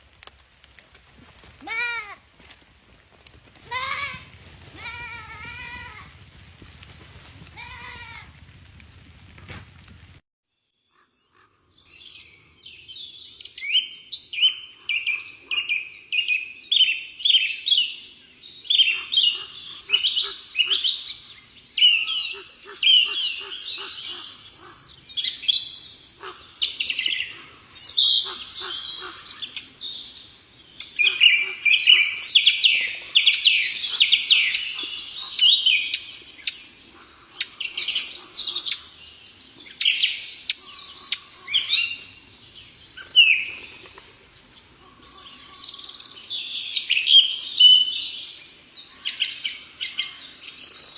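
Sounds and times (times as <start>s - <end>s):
small birds chirping: 10.5s - 50.9s.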